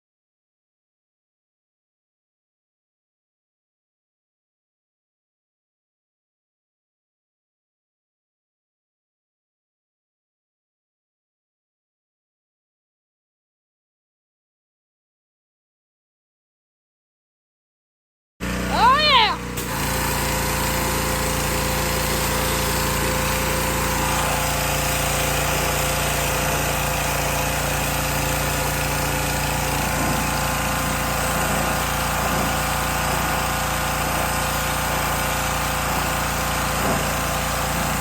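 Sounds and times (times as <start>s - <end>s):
pressure washer motor drone: 18.4s - 38.0s
water spray hiss: 19.6s - 33.3s.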